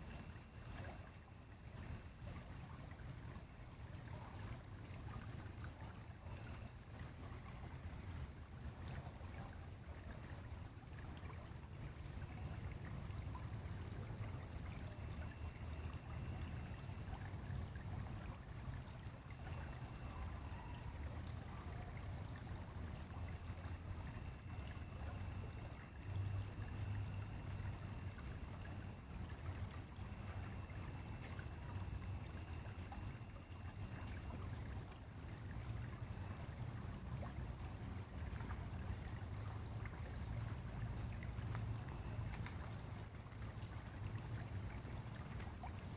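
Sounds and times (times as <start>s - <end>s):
stream water rushing: 12.5s - 38.2s.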